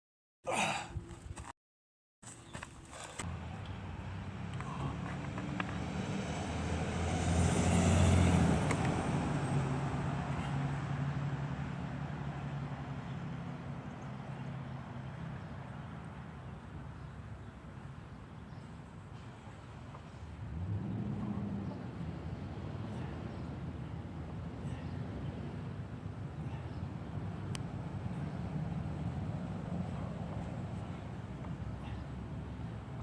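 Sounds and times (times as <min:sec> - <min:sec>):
vehicle engine hum passing: 0:03.0 - 0:33.0.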